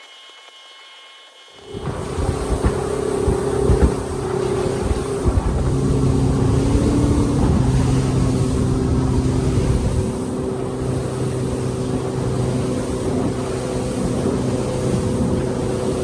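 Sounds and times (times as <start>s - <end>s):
outboard motor running: 1.6s - 16.0s
low thumps: 1.7s - 10.8s.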